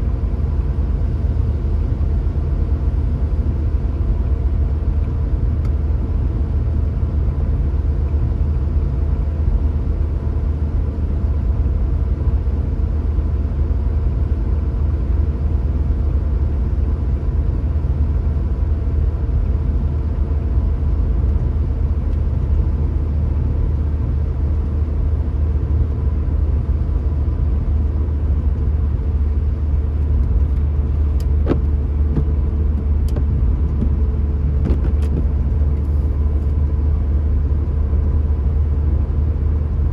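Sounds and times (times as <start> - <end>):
car driving rumble: 16.1 - 39.9.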